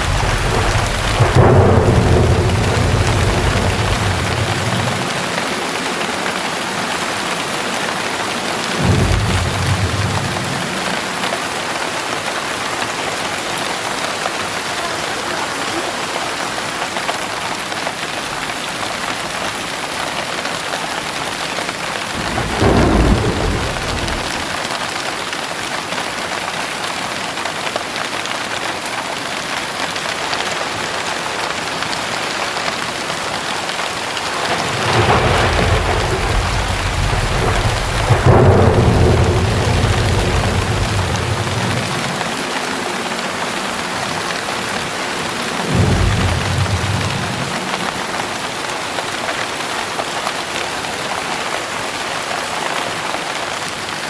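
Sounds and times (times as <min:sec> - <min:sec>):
thunder rolling: 0:00.0 - 0:14.8, 0:22.0 - 0:25.2, 0:33.4 - 0:49.0
heavy rain falling: 0:00.0 - 0:54.0.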